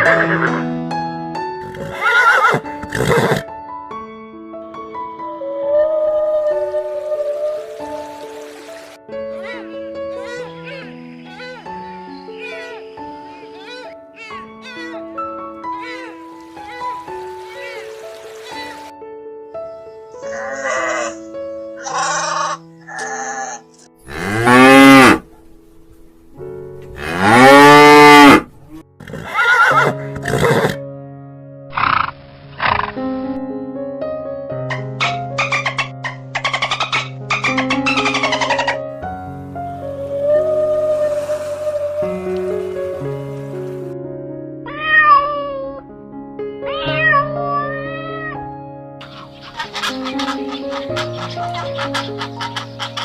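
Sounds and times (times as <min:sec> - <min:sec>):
background music with steady tones: 0:00.0 - 0:44.8, 0:48.3 - 0:53.0
cat meowing: 0:13.4 - 0:15.0, 0:44.7 - 0:45.8, 0:46.7 - 0:48.4
cow mooing: 0:24.0 - 0:25.2, 0:26.9 - 0:30.5
chicken clucking: 0:49.0 - 0:53.0.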